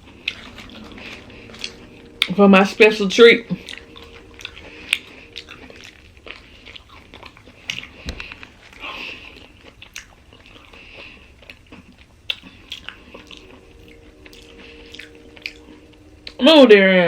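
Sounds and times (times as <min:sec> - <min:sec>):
person chewing a sandwich: 0:03.7 - 0:15.7.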